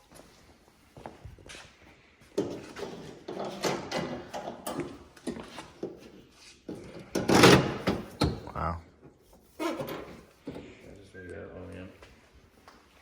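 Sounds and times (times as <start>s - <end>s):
car parts rustling and knocking: 1.6s - 10.8s.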